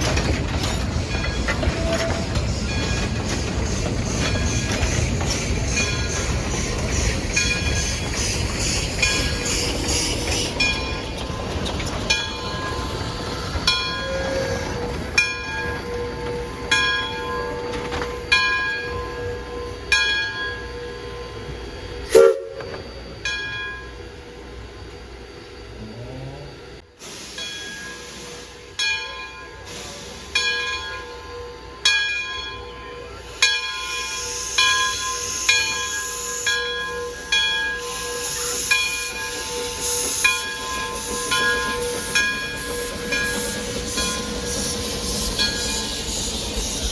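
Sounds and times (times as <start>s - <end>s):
steam hissing: 0.8s - 15.0s, 25.2s - 30.8s, 33.2s - 46.9s.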